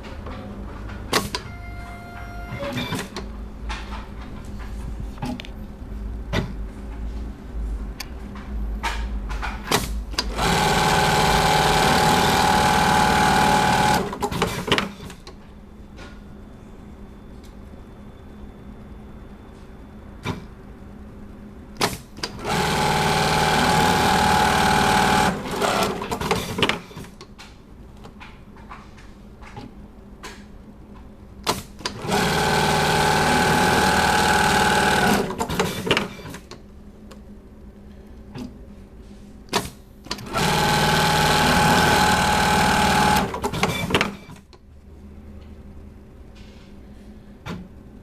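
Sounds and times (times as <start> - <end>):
sewing machine clicks: 9.7 - 15.2, 40.1 - 44.4
sewing machine stitching: 10.2 - 15.2, 22.3 - 27.1, 31.9 - 36.4, 40.2 - 44.4.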